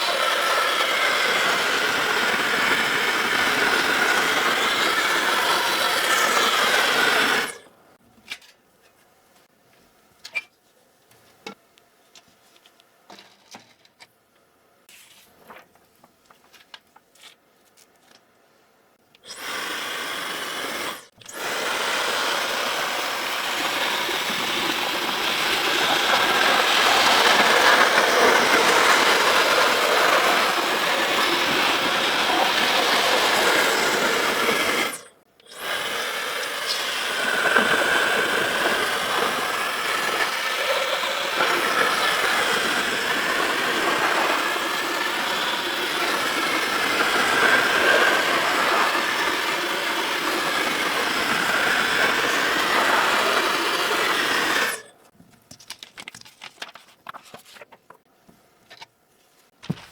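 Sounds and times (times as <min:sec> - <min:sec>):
small motorised tool running: 0:00.0 - 0:07.7, 0:19.2 - 0:54.9.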